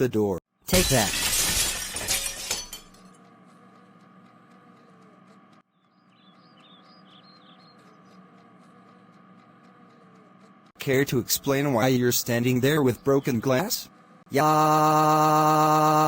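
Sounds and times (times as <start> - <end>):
glass smashing: 0.7 - 3.0.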